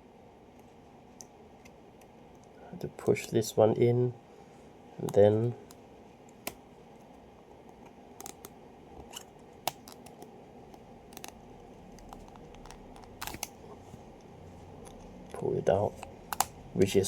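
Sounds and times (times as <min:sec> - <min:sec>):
pen clicking in plastic holder: 0:11.2 - 0:13.6.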